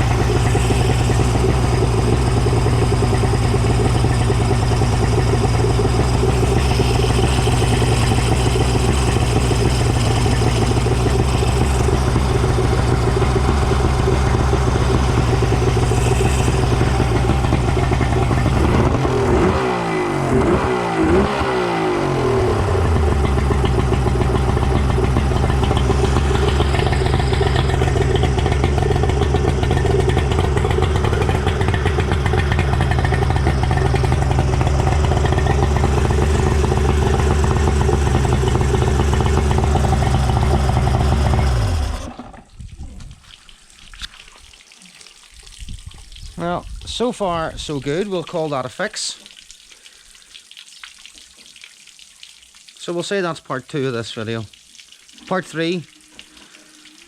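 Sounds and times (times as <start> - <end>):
outboard engine running: 0.0 - 42.5.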